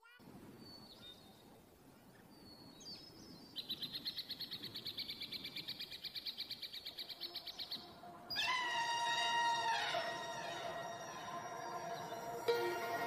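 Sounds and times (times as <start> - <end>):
bird trilling: 8.3 - 13.0.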